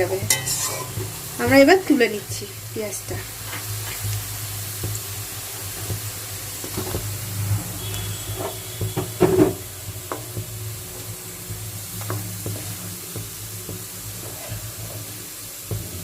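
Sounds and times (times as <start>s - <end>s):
oil sizzling in a pan: 0.0s - 16.0s
metal spoon scraping a pan: 0.2s - 1.0s, 7.8s - 10.2s, 12.0s - 12.9s, 14.1s - 15.3s.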